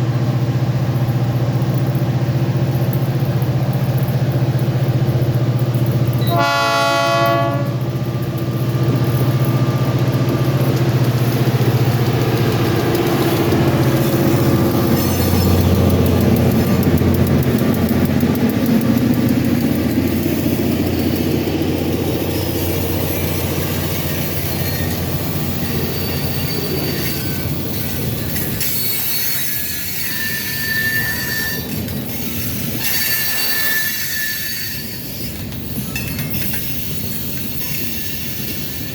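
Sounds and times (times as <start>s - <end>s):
diesel locomotive engine drone: 0.0s - 38.9s
train horn blast: 6.2s - 7.9s
train wheels squealing: 13.0s - 15.9s, 19.7s - 38.9s.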